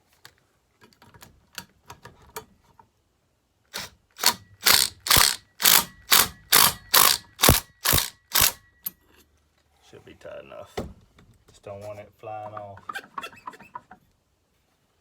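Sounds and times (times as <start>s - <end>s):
ratchet wrench clicking: 3.8s - 9.0s.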